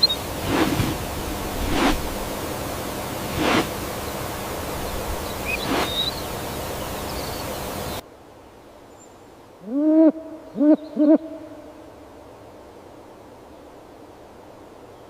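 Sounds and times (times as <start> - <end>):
faint bird chirps: 0.0 - 0.3, 4.8 - 8.0
rushing outdoor ambience hiss: 0.0 - 15.0
brief whooshes: 0.3 - 2.4, 3.0 - 4.0, 4.7 - 6.0.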